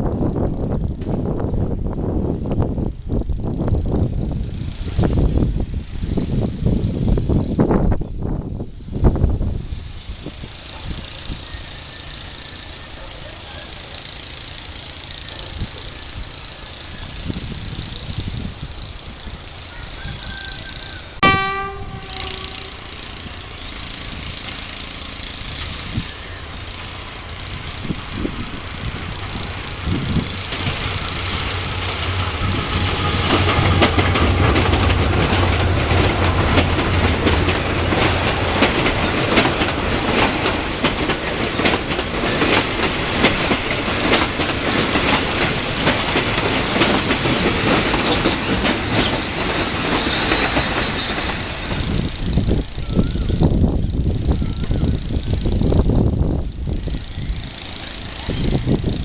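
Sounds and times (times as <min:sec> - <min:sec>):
train engine drone: 0:00.0 - 0:59.0
train wheels clattering: 0:09.9 - 0:53.2
train horn blast: 0:21.2 - 0:23.6, 0:32.1 - 0:33.8.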